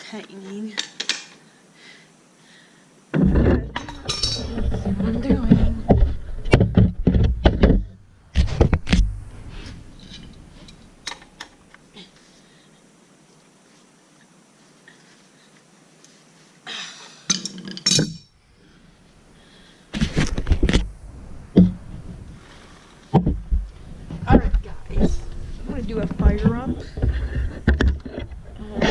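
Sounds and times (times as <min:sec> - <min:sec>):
metal tools clinking on bike parts: 0:03.8 - 0:04.5, 0:17.3 - 0:18.3.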